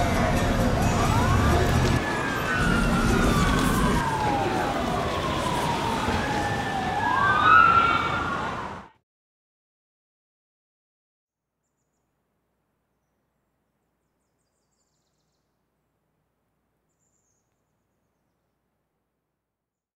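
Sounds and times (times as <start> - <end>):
faint outdoor hiss: 11.5 - 19.5
bird singing faintly: 13.8 - 15.6, 16.8 - 18.5.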